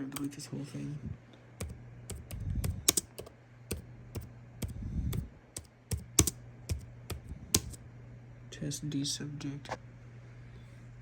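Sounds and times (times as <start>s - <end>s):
computer keyboard typing: 0.0s - 0.3s, 1.6s - 7.8s.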